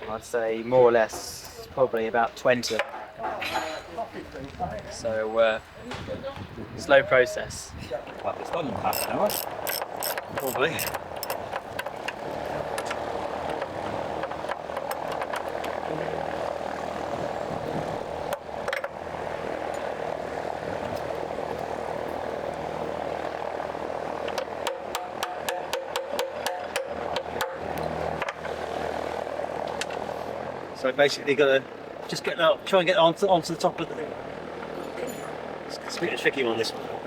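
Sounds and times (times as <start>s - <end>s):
engine-like drone: 8.3s - 37.0s
hand ratchet clicking: 8.9s - 12.2s.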